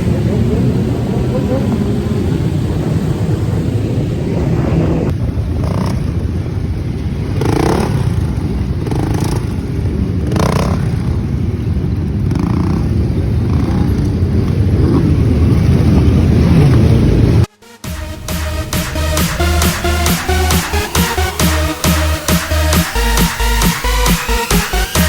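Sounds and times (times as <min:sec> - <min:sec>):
wind noise: 0:00.0 - 0:17.5
motorcycle engines rumbling: 0:00.0 - 0:25.0.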